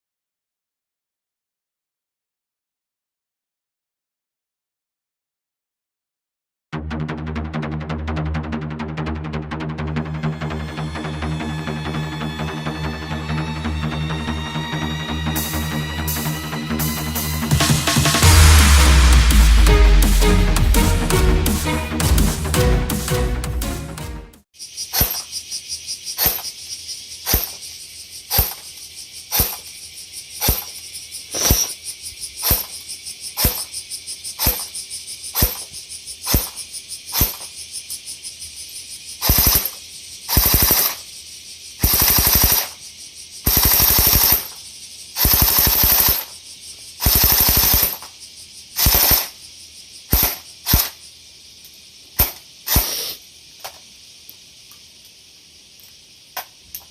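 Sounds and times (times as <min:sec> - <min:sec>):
airsoft gun shots: 0:41.8 - 0:42.7, 0:43.5 - 0:44.5, 0:45.2 - 0:46.3, 0:47.0 - 0:48.0, 0:48.8 - 0:49.3, 0:50.1 - 0:51.0.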